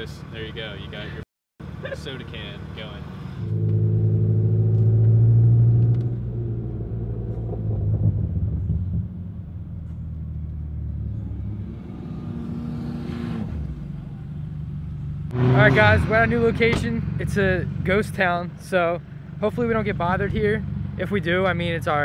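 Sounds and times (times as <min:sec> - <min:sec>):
car engine droning inside cabin: 0:01.8 - 0:11.6.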